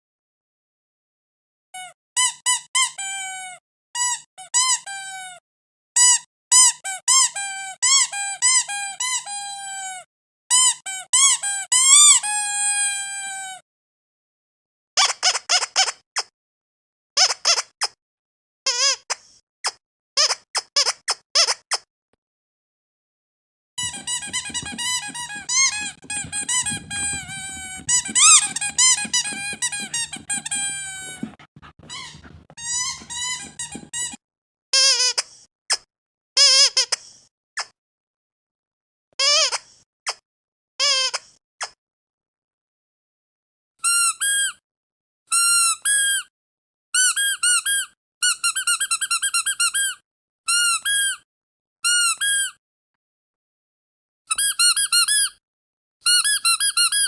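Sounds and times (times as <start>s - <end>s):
squeaky dog toy squeaks: 1.8s - 5.4s, 6.0s - 13.6s, 17.2s - 17.7s, 18.7s - 19.1s, 23.8s - 34.2s, 39.2s - 39.6s, 43.8s - 44.6s, 45.3s - 46.2s, 47.0s - 51.2s, 51.8s - 52.6s, 54.3s - 55.4s, 56.1s - 57.0s.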